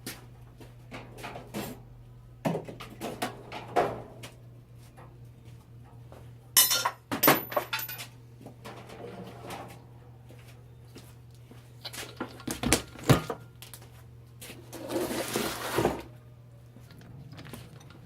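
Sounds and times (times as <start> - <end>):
faint steady hum: 0.0 - 18.0
metal clinking and clattering: 6.6 - 8.1.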